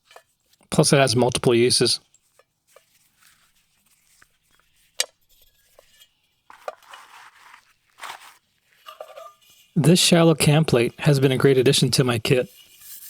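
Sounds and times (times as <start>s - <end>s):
metal cookware clinking: 0.0s - 0.5s, 8.8s - 9.7s
handling noise: 6.5s - 9.3s.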